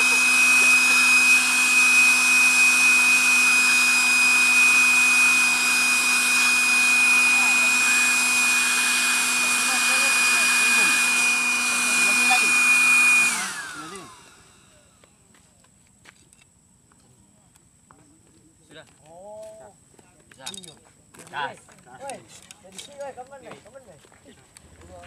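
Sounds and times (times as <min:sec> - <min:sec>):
motor running and winding down: 0:00.0 - 0:15.0.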